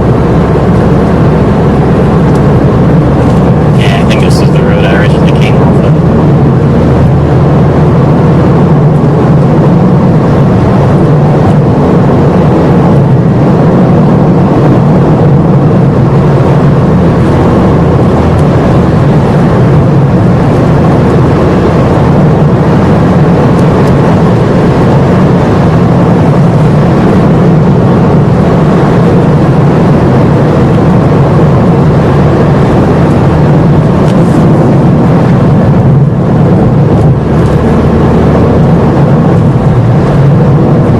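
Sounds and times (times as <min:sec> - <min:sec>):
car engine and road noise: 0:00.0 - 0:40.9.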